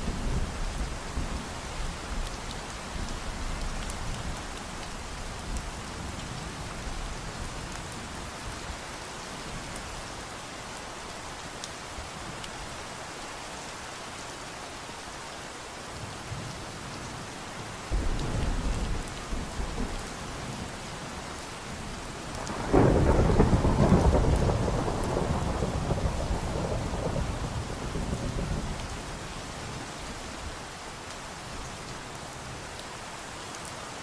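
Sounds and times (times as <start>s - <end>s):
steady rain: 0.0s - 34.0s
thunder rumbling: 17.9s - 20.7s, 22.3s - 29.3s
sharp thunder clap: 22.4s - 27.8s.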